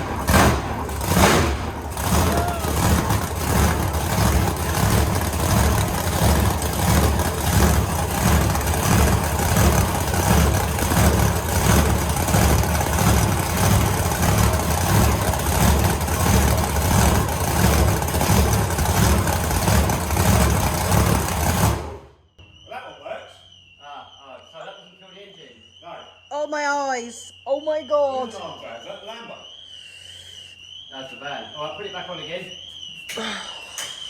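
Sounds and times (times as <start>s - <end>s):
loud engine with pulsing beat: 0.0s - 22.1s.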